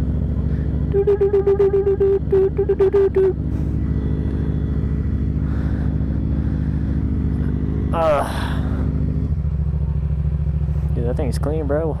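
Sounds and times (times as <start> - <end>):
motorcycle engine idling: 0.0 - 12.0
rapid horn-like beeps: 0.8 - 5.2.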